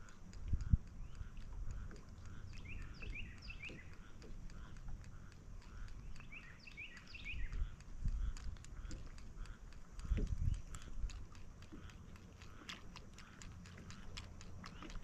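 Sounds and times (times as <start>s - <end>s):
low steady rumble: 0.0s - 15.0s
songbird chirping: 1.0s - 7.8s.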